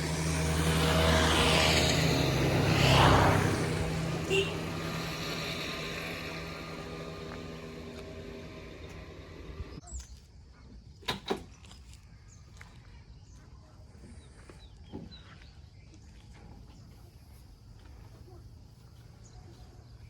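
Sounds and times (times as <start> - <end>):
engine droning: 0.0 - 9.8
birds chirping: 0.1 - 10.2.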